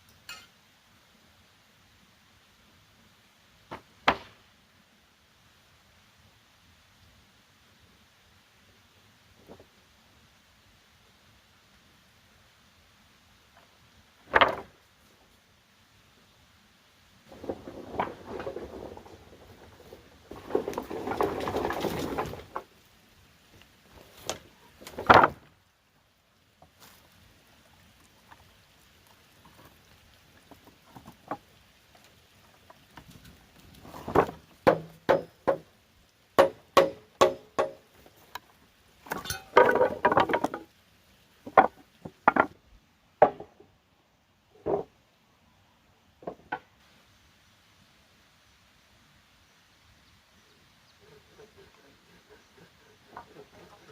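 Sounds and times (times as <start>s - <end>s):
scraping of wood and bamboo: 13.6s - 15.2s, 17.3s - 25.6s, 26.6s - 35.8s, 36.4s - 42.6s, 44.5s - 45.0s, 51.0s - 53.9s.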